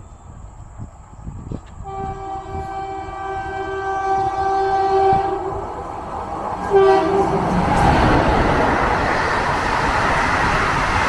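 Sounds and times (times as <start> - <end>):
train running on rails: 0.0 - 11.0
locomotive air horn blast: 1.8 - 5.7, 6.6 - 7.6.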